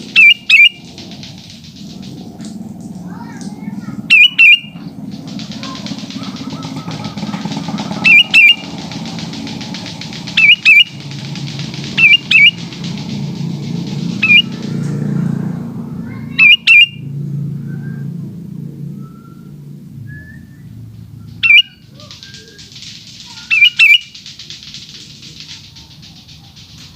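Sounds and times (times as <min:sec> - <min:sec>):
steady high hiss: 0:00.0 - 0:14.8
bird whistled calls: 0:00.0 - 0:14.9, 0:16.0 - 0:26.9
low rumble: 0:00.0 - 0:23.5.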